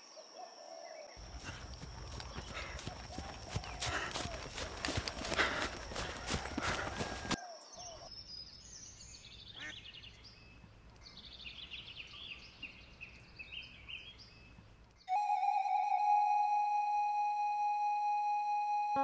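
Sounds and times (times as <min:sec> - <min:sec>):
faint outdoor ambience: 0:00.0 - 0:15.4
birds chirping: 0:00.1 - 0:15.2
music with held tone: 0:15.1 - 0:19.0.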